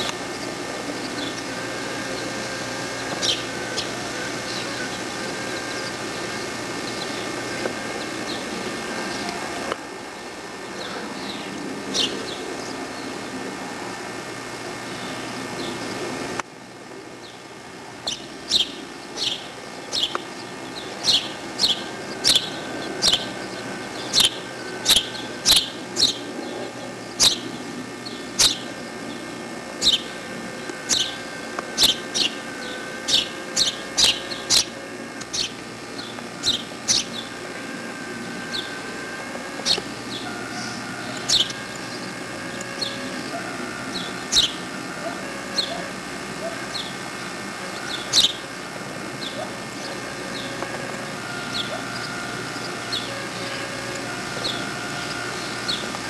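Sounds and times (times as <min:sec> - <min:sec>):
bird chirping: 0:00.0 - 0:09.6, 0:10.6 - 0:13.3, 0:17.2 - 0:48.5, 0:49.2 - 0:56.0.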